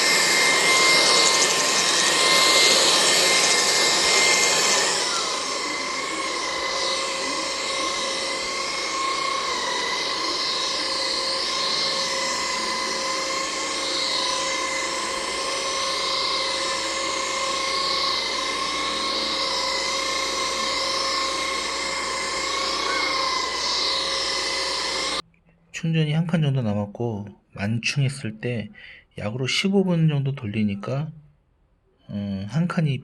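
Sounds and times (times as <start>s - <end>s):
stick vacuum cleaner running: 0.0s - 25.2s
vacuum hiss: 0.0s - 25.2s.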